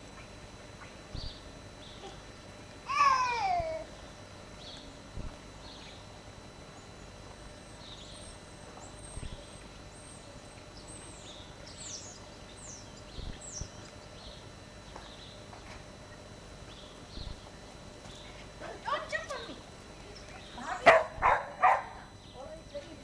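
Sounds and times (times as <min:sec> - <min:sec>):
soft low thumps: 0:01.0 - 0:01.5, 0:05.1 - 0:05.4, 0:13.0 - 0:15.6, 0:17.0 - 0:18.6.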